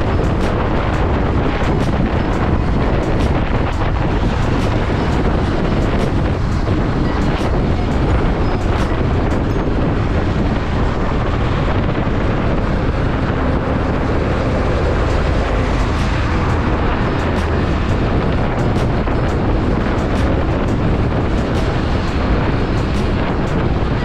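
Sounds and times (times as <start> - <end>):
road noise: 0.0 - 24.0
wind rush on microphone: 0.0 - 24.0.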